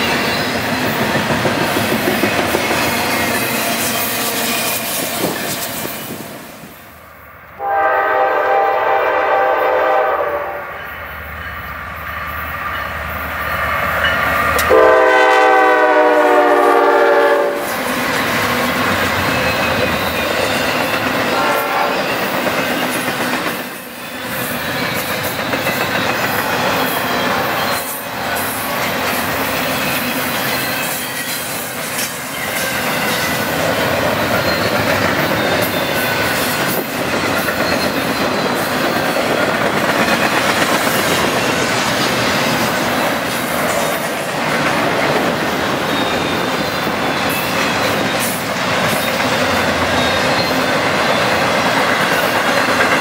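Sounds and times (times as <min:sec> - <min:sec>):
freight train rolling past: 0:00.0 - 0:53.0
locomotive air horn: 0:07.6 - 0:10.8, 0:14.6 - 0:17.8, 0:21.3 - 0:22.2
wheels clattering on rail: 0:17.7 - 0:53.0.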